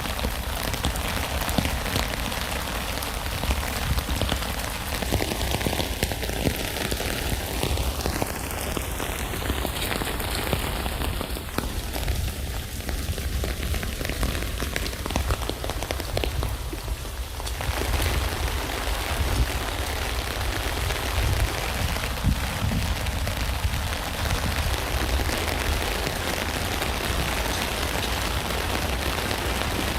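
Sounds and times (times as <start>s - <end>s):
rain falling on a tent: 0.0s - 29.9s.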